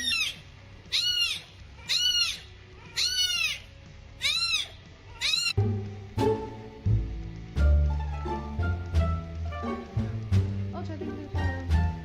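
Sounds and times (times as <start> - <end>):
cat meowing: 0.0 - 5.6
music: 0.0 - 12.0.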